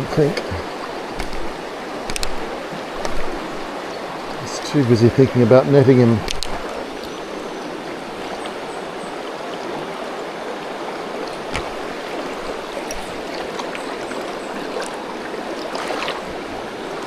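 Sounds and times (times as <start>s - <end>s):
river water rushing: 0.0s - 17.0s
faint clicks: 0.1s - 4.4s, 6.2s - 7.2s.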